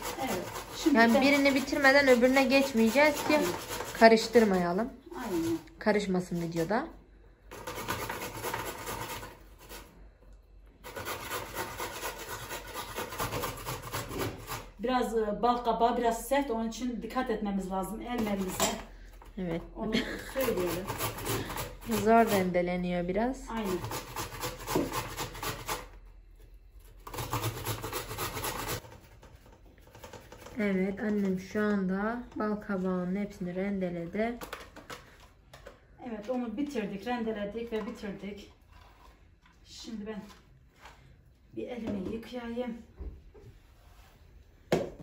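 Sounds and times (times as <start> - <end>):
pumpkin rasping on hand grater: 0.0 - 4.6, 7.5 - 9.9, 10.8 - 14.8, 20.2 - 22.6, 23.5 - 26.0, 26.8 - 29.2.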